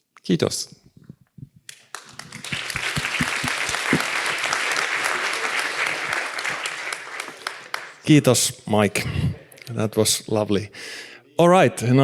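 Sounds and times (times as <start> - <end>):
audience applauding: 1.9 - 8.1.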